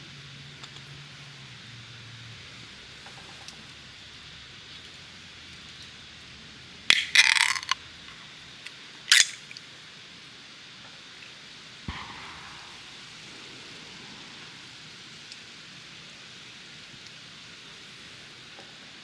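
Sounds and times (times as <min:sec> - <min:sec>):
steady background hiss: 0:00.0 - 0:19.0
small hard objects rattling: 0:06.9 - 0:08.2, 0:09.1 - 0:09.6
sharp clicks: 0:09.1 - 0:09.6.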